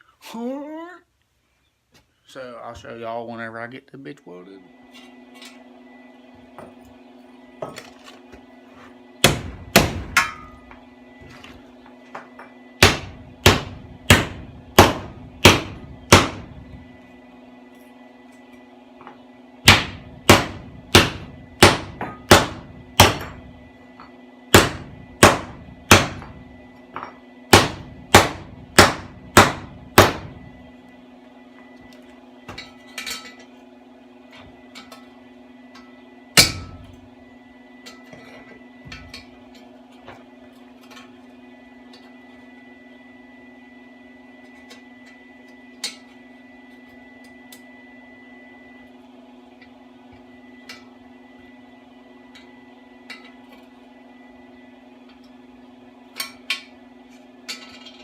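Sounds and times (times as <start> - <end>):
steady low hum: 0.0 - 58.0
hammer striking metal: 9.2 - 10.7, 12.2 - 16.6, 19.6 - 30.4, 35.8 - 36.9.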